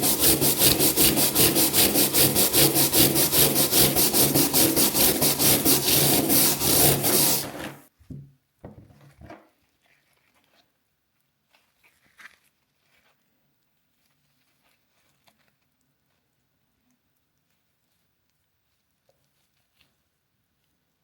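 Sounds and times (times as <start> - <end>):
scrubbing on rusty iron: 0.0 - 7.8
scrapes and knocks: 0.0 - 9.4.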